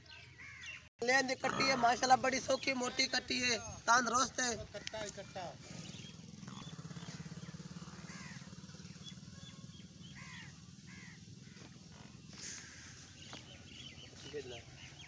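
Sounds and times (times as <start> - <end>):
short bird calls: 4.7 - 15.0
low pulsing engine hum: 5.6 - 15.0.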